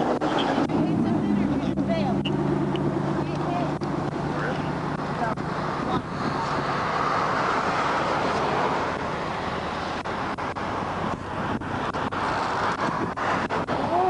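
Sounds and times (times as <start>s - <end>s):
vehicle and road noise: 0.0s - 14.0s.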